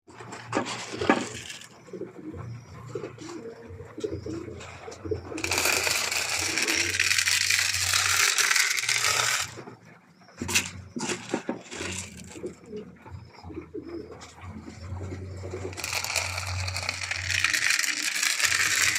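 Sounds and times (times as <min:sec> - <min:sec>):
pigeons cooing: 0:00.2 - 0:07.1, 0:09.6 - 0:18.0.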